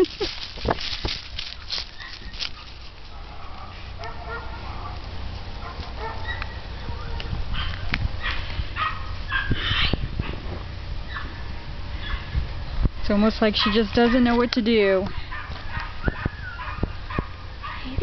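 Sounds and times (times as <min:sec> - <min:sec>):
dog barking and yipping: 0:01.9 - 0:05.0, 0:05.6 - 0:10.4, 0:12.0 - 0:12.4, 0:13.6 - 0:14.4, 0:15.2 - 0:18.0.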